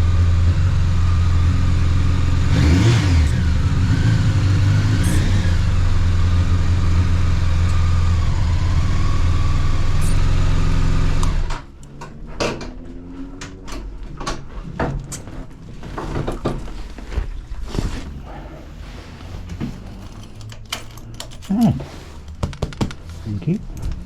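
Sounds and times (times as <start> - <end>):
motorcycle engine running: 0.0 - 12.3.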